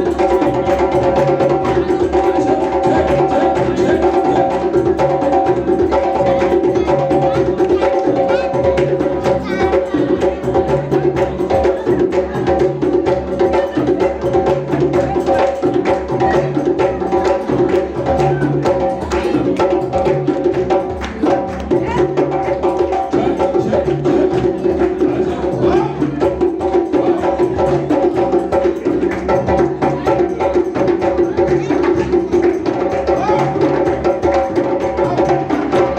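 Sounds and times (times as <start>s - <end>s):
clicking percussion beat: 0.0s - 35.9s
live band music: 13.0s - 35.9s.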